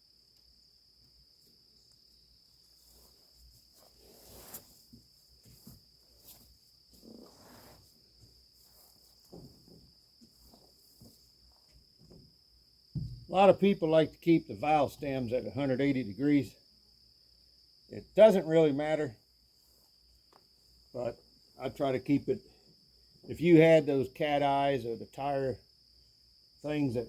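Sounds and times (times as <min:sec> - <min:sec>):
faint knocks and scuffs: 0:02.7 - 0:12.4, 0:13.0 - 0:13.3.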